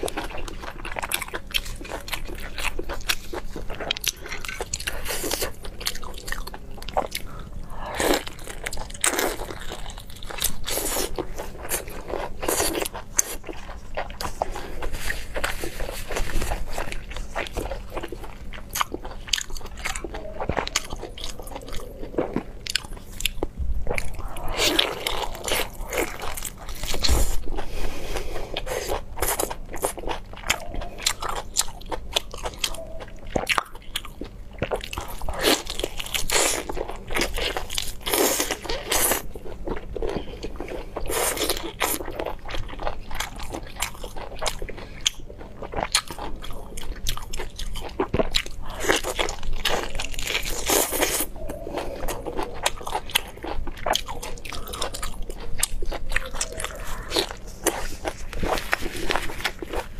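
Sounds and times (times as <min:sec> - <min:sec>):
biting and chewing lobster: 0:00.0 - 0:59.9
wet mouth sounds: 0:49.9 - 0:59.9.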